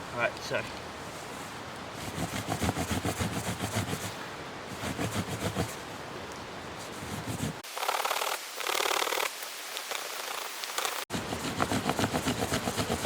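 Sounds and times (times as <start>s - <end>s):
knife spine rasping on branch: 2.0s - 5.8s, 6.9s - 7.6s, 11.1s - 13.0s.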